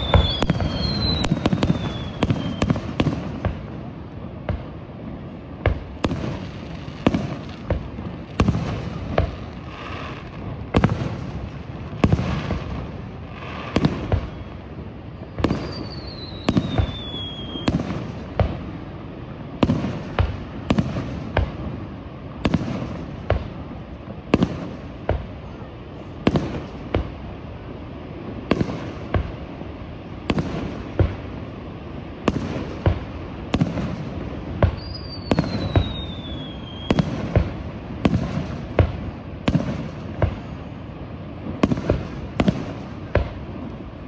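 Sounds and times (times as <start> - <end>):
thin falling whistle: 0.0 - 2.7.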